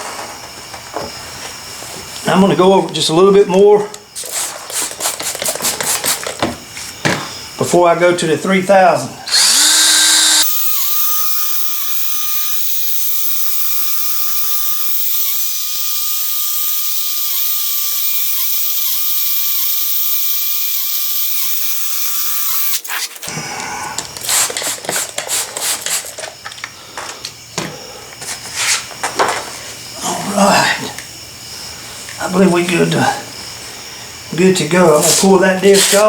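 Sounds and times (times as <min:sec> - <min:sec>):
electric drill sanding plastic: 0:09.3 - 0:23.3.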